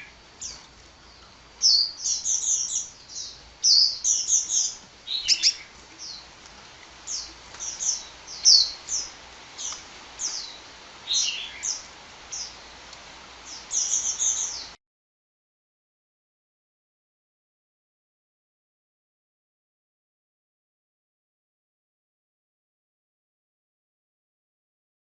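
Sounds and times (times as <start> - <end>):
sunbird high thin chirps: 1.6 - 6.3, 7.1 - 12.6, 13.4 - 14.8.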